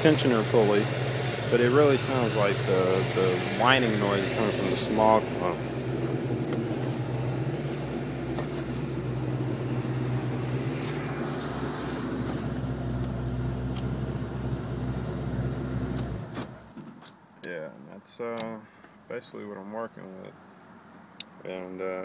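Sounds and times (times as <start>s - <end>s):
car engine idling: 0.0s - 16.4s
engine whine: 0.0s - 16.7s.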